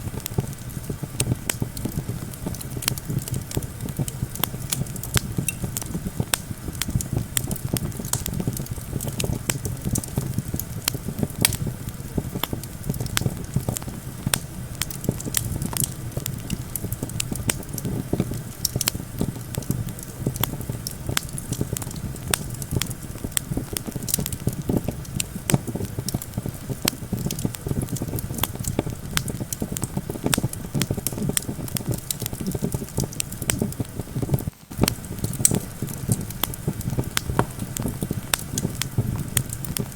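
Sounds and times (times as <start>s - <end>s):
campfire crackling and popping: 0.0s - 39.9s
wind rumble: 0.0s - 39.9s.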